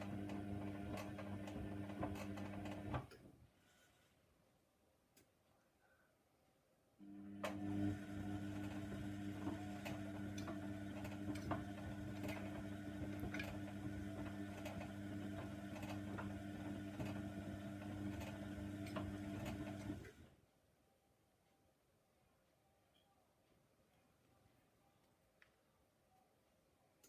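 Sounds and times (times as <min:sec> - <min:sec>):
washing machine motor hum: 0:00.0 - 0:03.2, 0:07.0 - 0:20.3.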